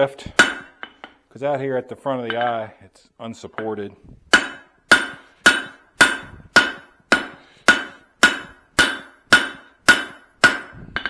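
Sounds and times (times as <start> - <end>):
hammer striking hot steel: 0.0 - 1.2, 4.3 - 11.0.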